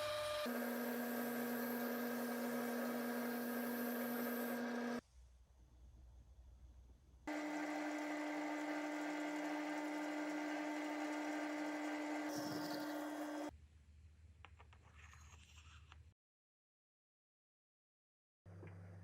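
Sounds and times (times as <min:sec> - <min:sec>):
small electric motor running: 0:00.0 - 0:05.0, 0:07.3 - 0:13.5.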